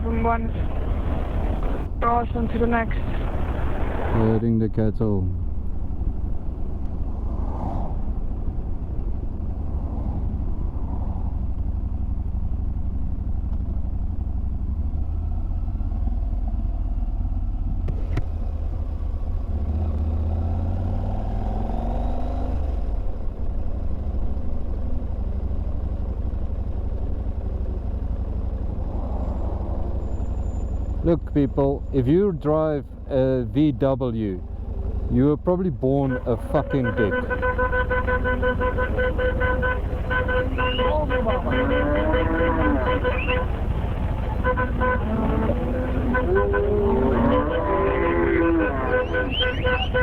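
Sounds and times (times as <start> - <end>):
motorcycle engine rumbling: 0.0 - 50.0.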